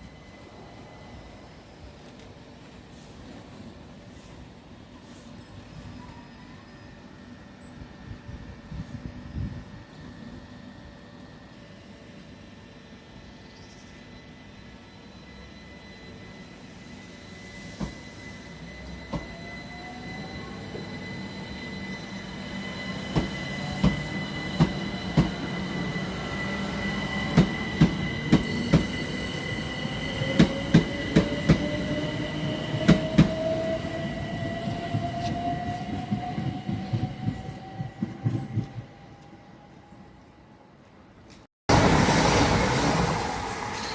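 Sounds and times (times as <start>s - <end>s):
train rumble: 16.8s - 39.9s.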